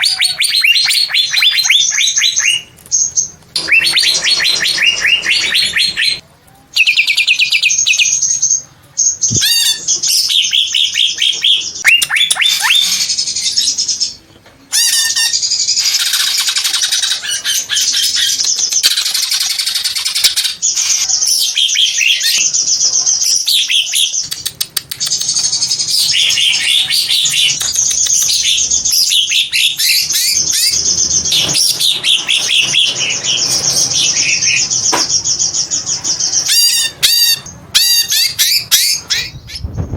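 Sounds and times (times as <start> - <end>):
bird singing trills and whistles: 0.0 - 6.2, 14.8 - 39.9.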